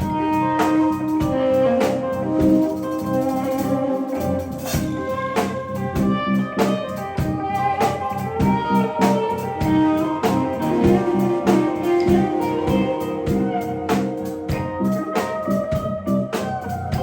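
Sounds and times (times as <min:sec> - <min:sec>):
drum kit beat: 0:00.0 - 0:17.0
guitar: 0:00.0 - 0:17.0.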